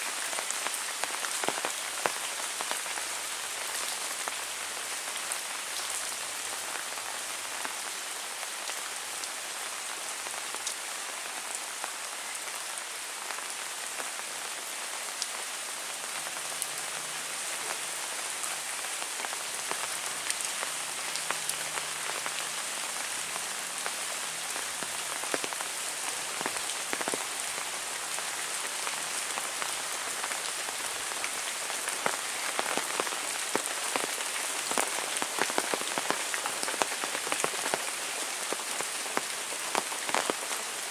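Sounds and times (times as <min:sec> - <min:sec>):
heavy rain hiss: 0:00.0 - 0:40.9.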